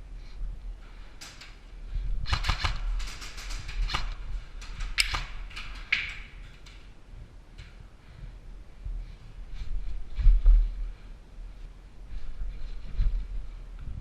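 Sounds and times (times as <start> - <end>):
airsoft guns firing: 2.2 - 4.2, 4.8 - 6.3.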